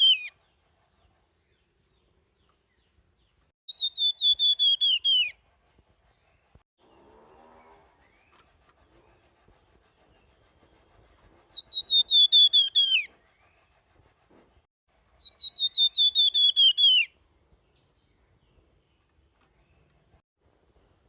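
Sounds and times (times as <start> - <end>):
bird singing whistled notes: 0.0 - 0.5, 3.7 - 5.4, 11.5 - 13.5, 15.2 - 18.4.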